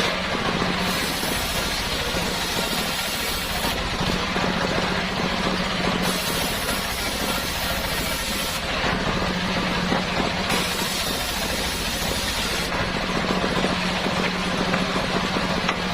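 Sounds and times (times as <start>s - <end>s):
hiss: 0.8s - 3.8s, 6.0s - 8.7s, 10.5s - 12.7s.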